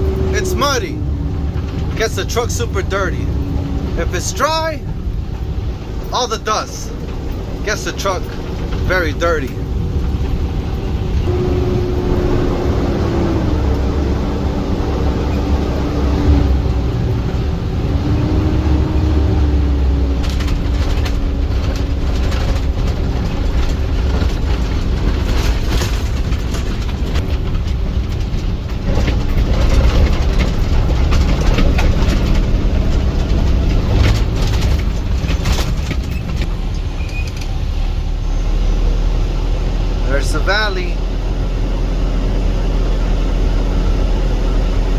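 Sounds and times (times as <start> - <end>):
clattering rattles and knocks: 0.0 - 37.7
truck engine and road rumble: 0.0 - 44.9
mechanical whine: 7.0 - 24.2.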